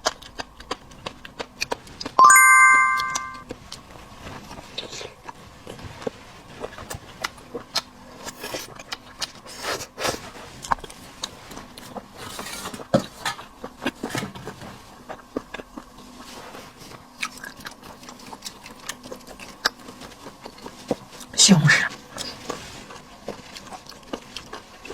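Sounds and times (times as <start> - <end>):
person chewing crunchy seafood: 6.6 - 11.3, 17.1 - 21.1, 22.2 - 24.9.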